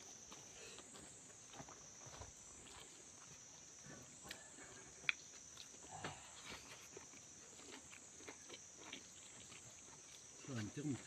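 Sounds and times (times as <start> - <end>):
person chewing food: 4.3 - 10.4.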